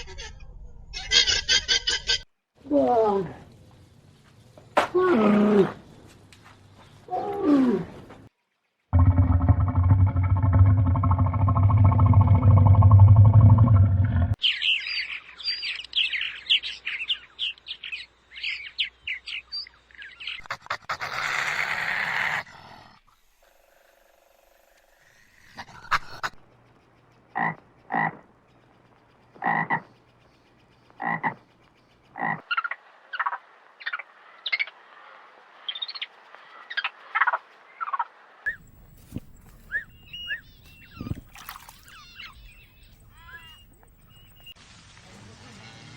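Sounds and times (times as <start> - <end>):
low pitched animal call: 8.9 - 14.4.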